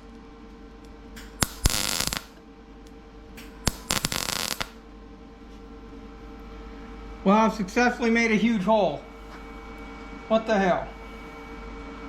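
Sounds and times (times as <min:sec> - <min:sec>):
arc welding crackling sizzle: 0:00.0 - 0:04.8
faint steady hum: 0:00.0 - 0:12.0.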